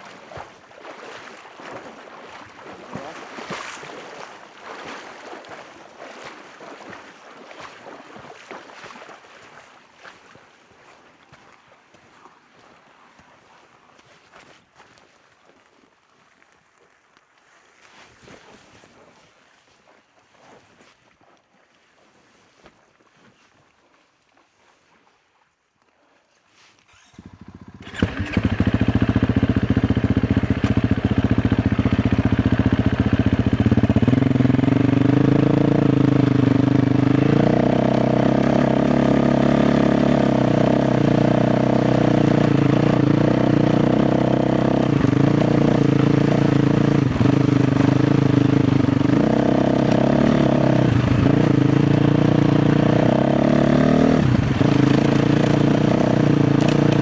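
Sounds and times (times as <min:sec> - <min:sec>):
motorcycle engine starting and running: 0:26.9 - 0:57.0.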